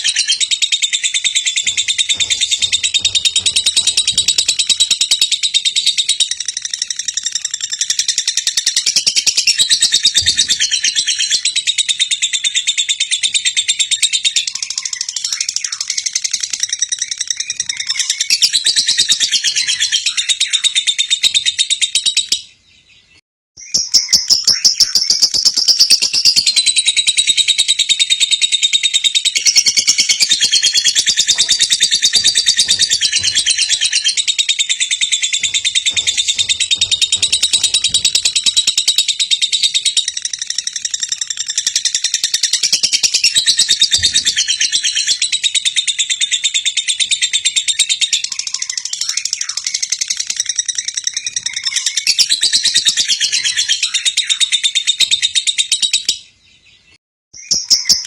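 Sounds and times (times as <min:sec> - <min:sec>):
bird chattering trill: 0:23.7 - 0:46.8.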